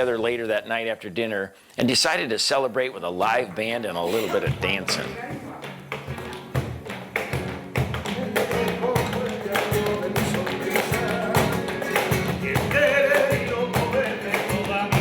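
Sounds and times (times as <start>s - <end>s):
plucked guitar: 4.0s - 15.0s
sharp percussive beat: 4.1s - 15.0s.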